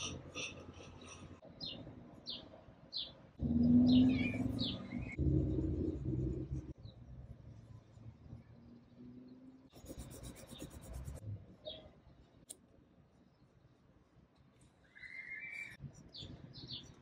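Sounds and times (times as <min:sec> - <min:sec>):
bird chirps: 0:01.6 - 0:05.2.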